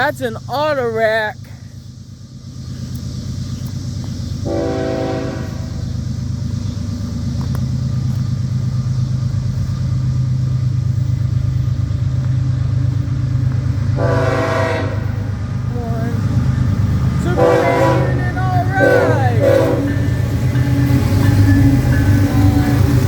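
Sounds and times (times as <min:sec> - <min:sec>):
diesel locomotive engine rumbling: 0:00.0 - 0:23.0
train air horn blast: 0:04.4 - 0:05.8, 0:14.0 - 0:15.3, 0:17.3 - 0:20.1.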